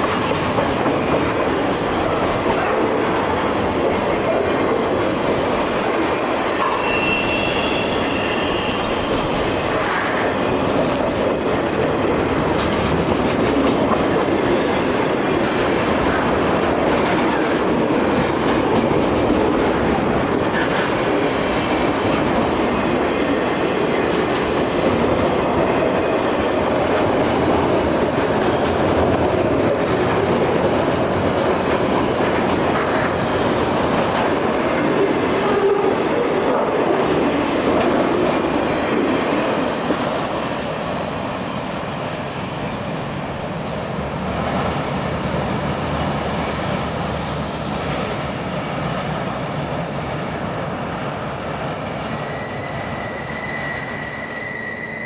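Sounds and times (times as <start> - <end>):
clickety-clack over rail joints: 0.0 - 53.0
freight train wheels rumbling: 0.0 - 55.0
faint wheel squeal: 6.7 - 9.6, 52.0 - 55.0.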